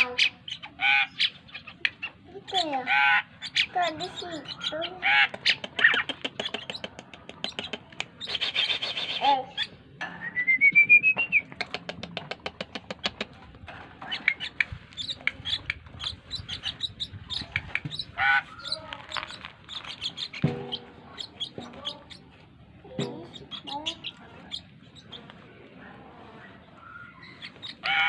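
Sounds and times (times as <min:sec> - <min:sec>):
starling clicking chatter: 0:00.0 - 0:09.8, 0:10.7 - 0:25.6
rising bird whistle: 0:10.2 - 0:11.5.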